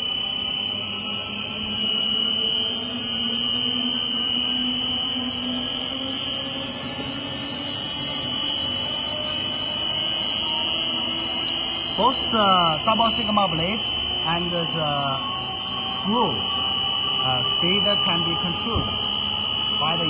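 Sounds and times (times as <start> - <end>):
high-pitched whine: 0.0 - 20.0
mixer motor hum: 0.0 - 20.0.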